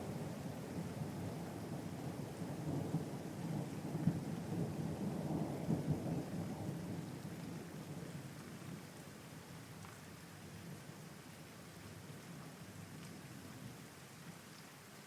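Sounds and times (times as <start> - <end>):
low rumble of thunder: 0.0 - 9.7
steady rain: 0.0 - 15.0.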